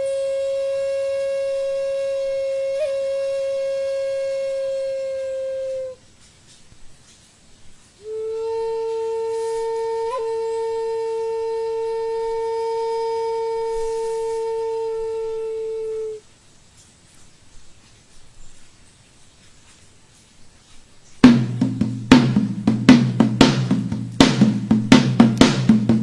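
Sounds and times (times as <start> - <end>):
flute-like wind instrument notes: 0.0 - 6.0, 8.0 - 16.3.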